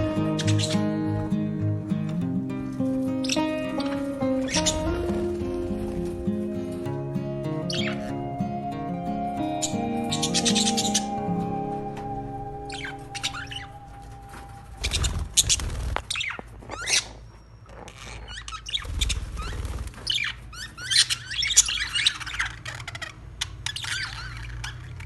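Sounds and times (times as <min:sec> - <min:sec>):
budgerigars chirping: 0:00.0 - 0:01.3, 0:03.2 - 0:08.6, 0:09.2 - 0:11.2.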